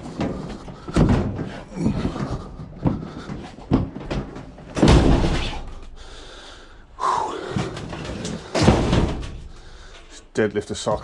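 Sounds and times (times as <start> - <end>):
metal cabinet knocking and thudding: 3.7 - 5.6, 7.6 - 9.5
heavy clattering thump: 3.7 - 5.7, 7.6 - 9.5.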